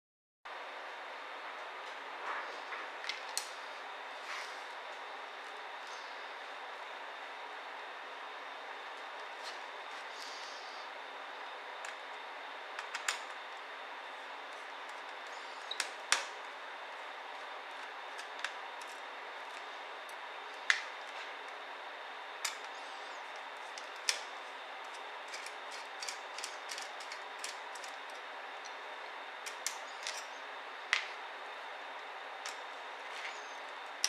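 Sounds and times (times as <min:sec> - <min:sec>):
faint high whine: 0:03.4 - 0:34.0
small tools and laptop parts clicking: 0:12.8 - 0:13.4, 0:14.9 - 0:16.4, 0:17.8 - 0:20.9, 0:22.4 - 0:28.8, 0:29.4 - 0:30.4.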